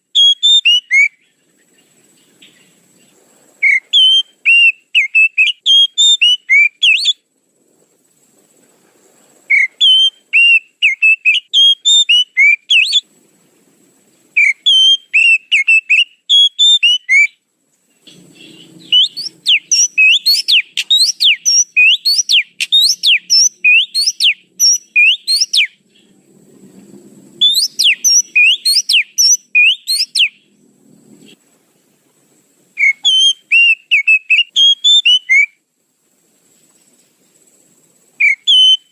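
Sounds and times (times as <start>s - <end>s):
bird whistled song: 0.0s - 2.8s, 3.6s - 7.2s, 9.5s - 13.1s, 14.4s - 17.4s, 18.0s - 26.2s, 27.4s - 30.6s, 32.8s - 35.6s, 38.2s - 38.9s.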